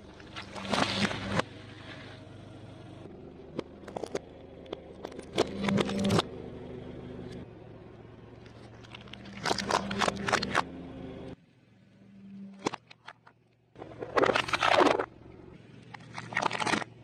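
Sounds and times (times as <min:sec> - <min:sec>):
engine hum: 0:00.0 - 0:17.0
food crunching: 0:08.4 - 0:10.6, 0:15.9 - 0:17.0.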